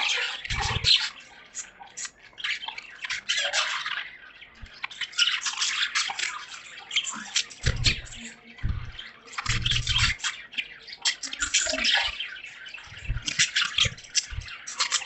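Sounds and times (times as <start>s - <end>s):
budgerigars chirping: 0.0s - 15.0s
low thump: 7.6s - 10.2s.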